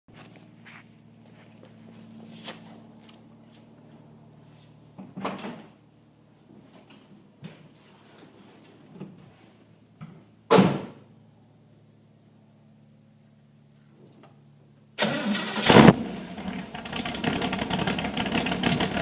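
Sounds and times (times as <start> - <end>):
car door slammed shut: 10.5 - 11.0.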